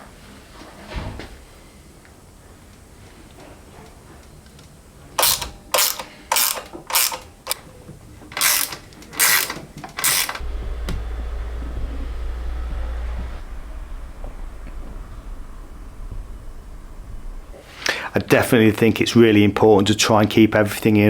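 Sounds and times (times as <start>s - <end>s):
hand ratchet clicking: 5.2s - 7.6s, 8.4s - 10.4s
steady low hum: 10.1s - 19.2s.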